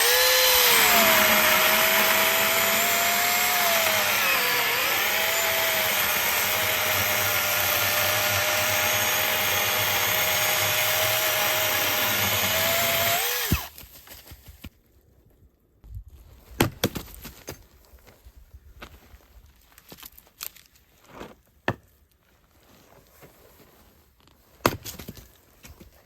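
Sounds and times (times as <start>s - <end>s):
battery chainsaw motor whine: 0.0s - 13.7s.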